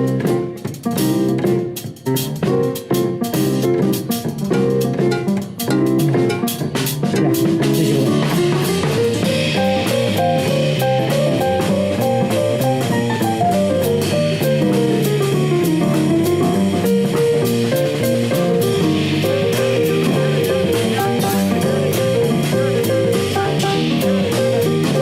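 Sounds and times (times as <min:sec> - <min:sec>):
bass guitar: 0:00.0 - 0:25.0
drum kit: 0:00.0 - 0:25.0
guitar: 0:01.3 - 0:25.0.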